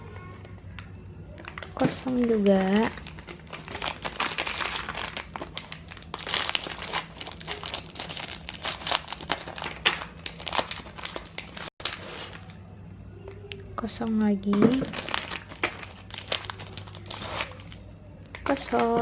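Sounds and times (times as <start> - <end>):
plastic wrappers crinkling: 0.0 - 12.6, 13.2 - 19.0.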